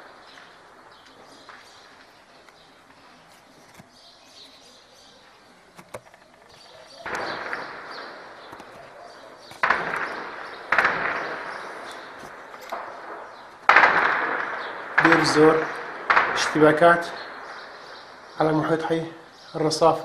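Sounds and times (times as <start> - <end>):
distant gunfire with echo: 7.0 - 19.5.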